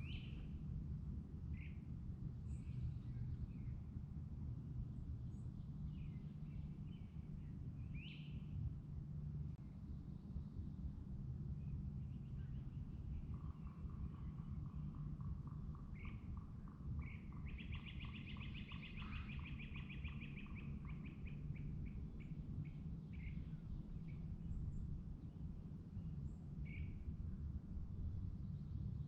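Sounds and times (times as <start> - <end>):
songbirds calling: 0.0 - 0.6, 12.0 - 25.4, 26.1 - 27.1
steady low rumble: 0.0 - 29.0.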